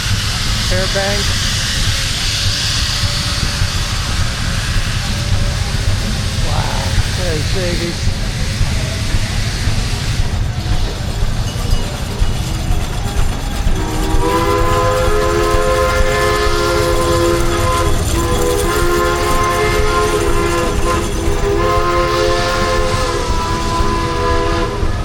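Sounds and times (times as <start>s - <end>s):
low steady rumble: 0.0s - 25.0s
chime steam whistle blasts: 13.8s - 25.0s.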